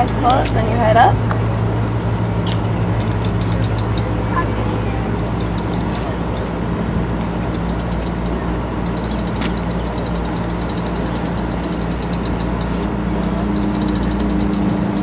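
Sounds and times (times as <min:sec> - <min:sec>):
low engine-like hum: 0:00.0 - 0:15.0
rapid high-pitched ticking: 0:03.2 - 0:04.2, 0:05.2 - 0:06.8, 0:07.4 - 0:15.0.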